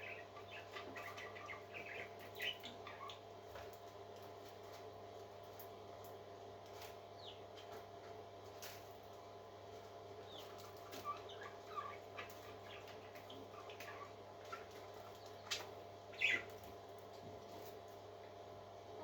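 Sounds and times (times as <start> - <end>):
parrot chick peeping: 0.0 - 3.7, 7.2 - 7.5, 10.2 - 16.7.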